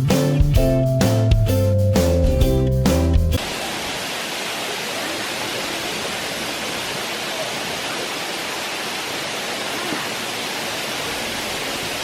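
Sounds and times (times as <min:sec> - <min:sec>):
rush of running water: 0:03.0 - 0:12.0.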